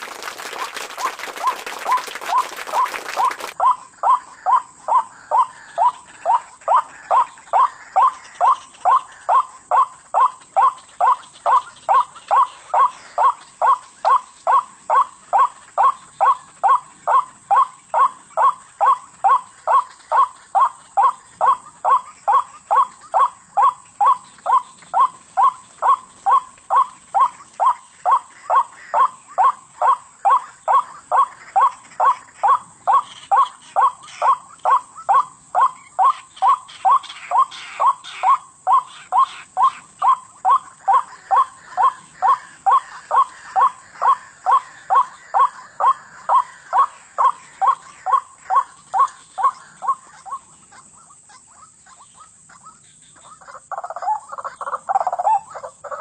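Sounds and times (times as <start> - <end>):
bird calling wak notes: 0.0 - 3.6.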